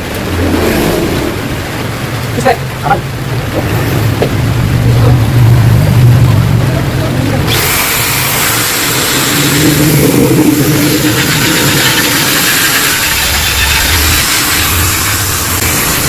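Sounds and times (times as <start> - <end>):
two-stroke motorcycle engine revving: 7.3 - 16.0.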